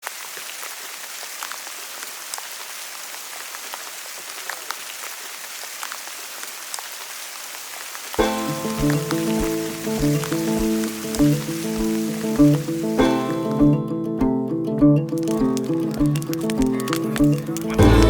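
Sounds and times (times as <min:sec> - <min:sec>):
steady rainfall: 0:00.0 - 0:13.7, 0:15.1 - 0:18.0
rain drop ticks: 0:08.1 - 0:13.8, 0:14.9 - 0:18.0
music with pitched notes: 0:08.2 - 0:18.0.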